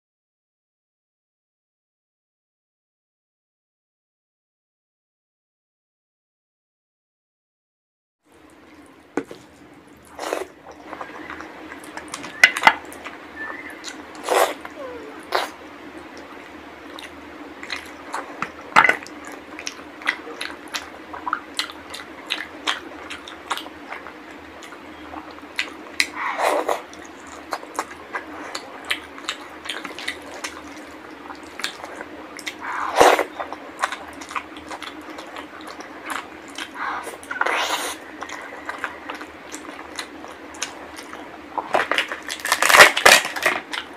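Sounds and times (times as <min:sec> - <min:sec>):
faint steady hum: 0:08.3 - 0:43.9
wet chewing and lip smacks: 0:08.6 - 0:42.8.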